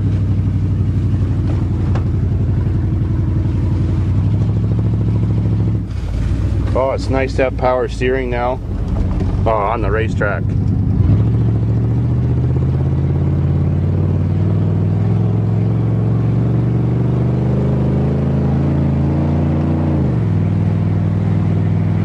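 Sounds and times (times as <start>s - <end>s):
pickup engine accelerating: 0.0s - 22.0s.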